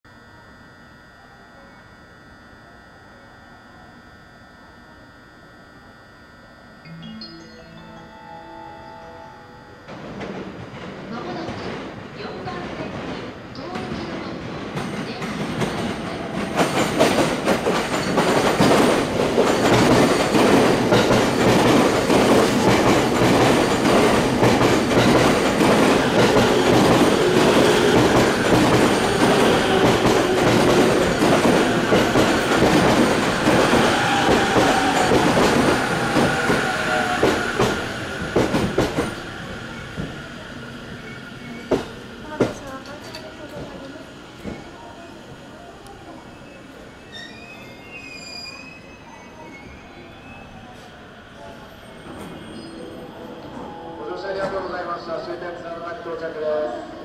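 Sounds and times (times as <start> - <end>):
train falling whine: 16.0 - 42.7.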